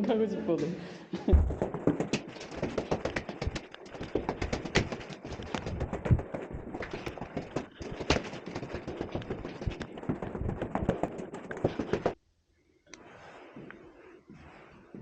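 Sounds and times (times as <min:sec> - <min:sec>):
hard knocks and clacks: 0:01.3 - 0:12.2.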